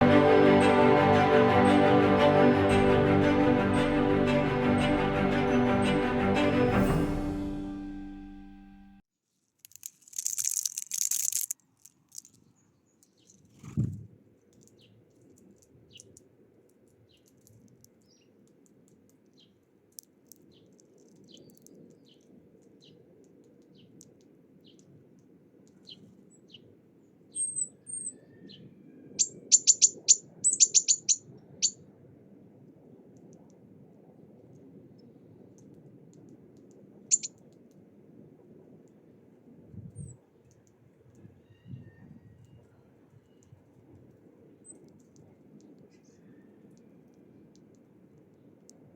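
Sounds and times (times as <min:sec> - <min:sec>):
small birds chirping: 0:12.2 - 0:13.6, 0:14.6 - 0:16.2, 0:16.9 - 0:18.6, 0:19.2 - 0:19.7, 0:20.4 - 0:25.0, 0:25.7 - 0:31.8, 0:37.1 - 0:37.4.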